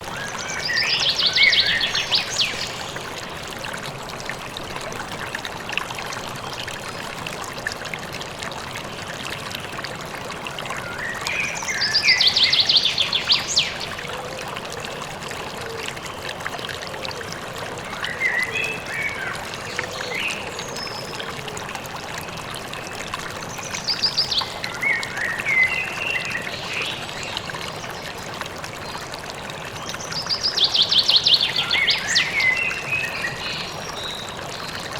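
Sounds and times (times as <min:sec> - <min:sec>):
stream running: 0:00.0 - 0:34.9
songbird singing with high trill: 0:00.2 - 0:02.8.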